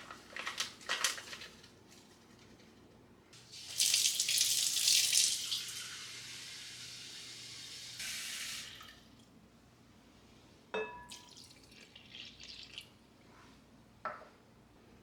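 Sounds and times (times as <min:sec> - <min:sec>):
water running from tap: 0:03.5 - 0:08.9
glass clinking: 0:10.8 - 0:11.4
water dripping and splashing: 0:11.2 - 0:12.9.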